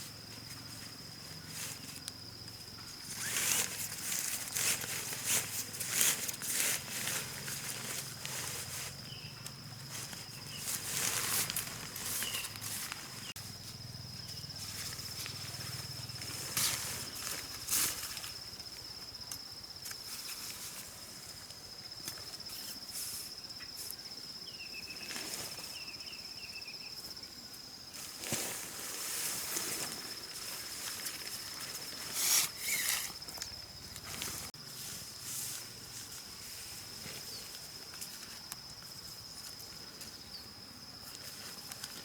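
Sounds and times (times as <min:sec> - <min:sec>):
insect drone: 0:00.0 - 0:42.0
rustles: 0:00.0 - 0:42.0
chirps: 0:09.0 - 0:11.2, 0:12.0 - 0:16.2.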